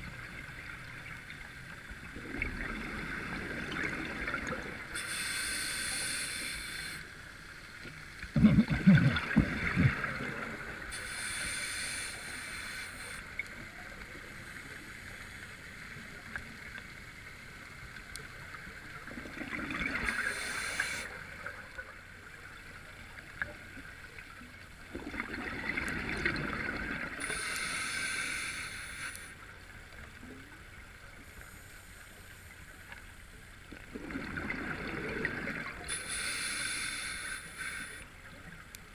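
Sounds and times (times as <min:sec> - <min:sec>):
exhaled bubbles gurgling: 0:02.0 - 0:05.0, 0:08.2 - 0:11.2, 0:19.0 - 0:21.6, 0:24.8 - 0:28.1, 0:33.7 - 0:36.8
diver breathing through regulator: 0:05.0 - 0:07.1, 0:10.9 - 0:13.3, 0:20.1 - 0:21.1, 0:27.2 - 0:29.3, 0:35.9 - 0:38.1
low bubbling rumble: 0:08.3 - 0:10.8.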